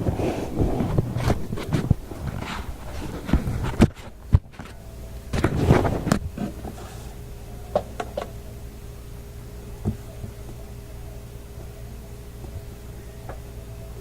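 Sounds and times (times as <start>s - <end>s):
scraping rustle: 0.0s - 7.3s
faint steady hum: 0.0s - 14.0s.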